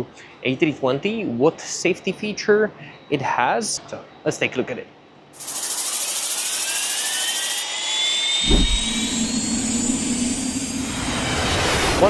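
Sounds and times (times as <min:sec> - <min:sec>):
jet engine hissing and whining: 0:05.4 - 0:12.0
low thump: 0:08.4 - 0:09.3
steady low hum: 0:08.4 - 0:10.9.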